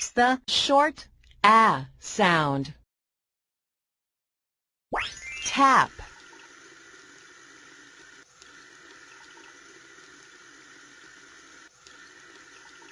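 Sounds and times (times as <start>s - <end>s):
water running from a tap: 5.1s - 12.9s.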